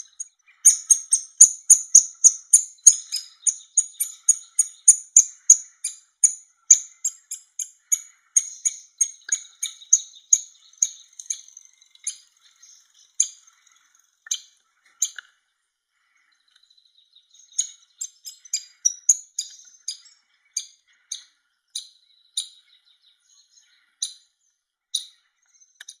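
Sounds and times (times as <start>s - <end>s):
chick begging calls: 0.0s - 12.3s.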